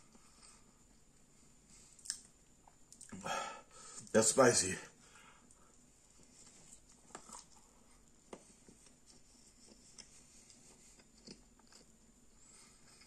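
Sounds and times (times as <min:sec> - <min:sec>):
person chewing: 0:01.9 - 0:03.2, 0:06.6 - 0:07.7, 0:09.9 - 0:12.0
soft mouth clicks: 0:02.0 - 0:02.3.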